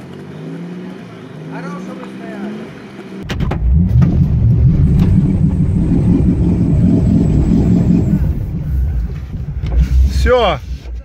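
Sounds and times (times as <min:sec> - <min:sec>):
vehicle engine straining: 0:00.0 - 0:11.0.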